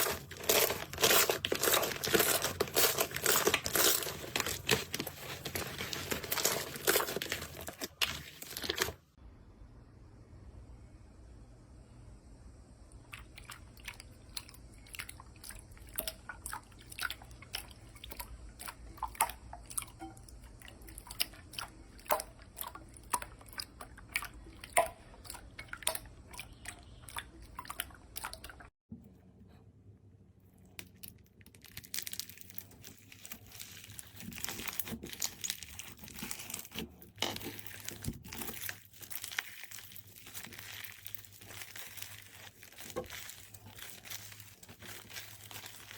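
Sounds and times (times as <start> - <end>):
crinkly crunching: 0.0 - 9.1, 30.8 - 45.9.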